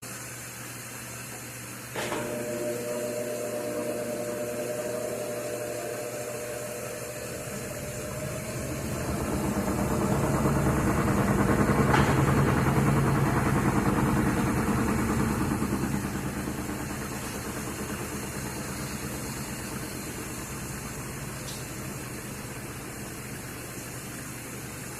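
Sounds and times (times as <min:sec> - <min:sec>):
washing machine motor whine: 0:00.0 - 0:24.9
rumbling spinning drum: 0:04.0 - 0:23.6.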